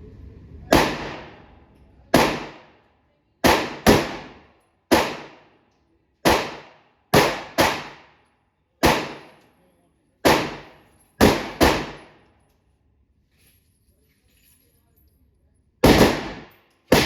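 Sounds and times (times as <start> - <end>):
pistol shots echoing: 0.7 - 1.5, 2.1 - 2.8, 3.4 - 5.5, 6.2 - 8.2, 8.8 - 9.3, 10.2 - 12.2, 15.8 - 17.0.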